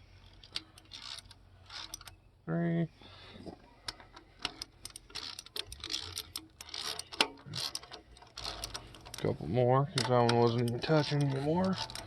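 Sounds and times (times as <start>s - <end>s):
socket ratchet clicking: 4.0s - 12.0s.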